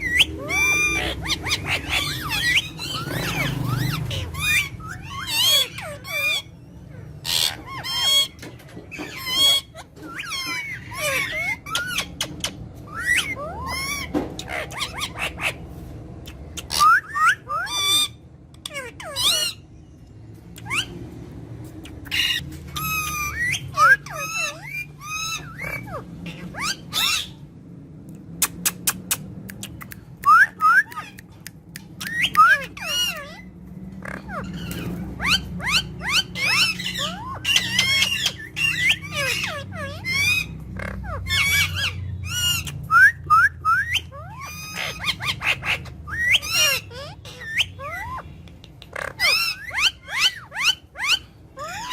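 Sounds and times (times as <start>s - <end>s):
parrots squawking and whistling: 0.0s - 51.9s.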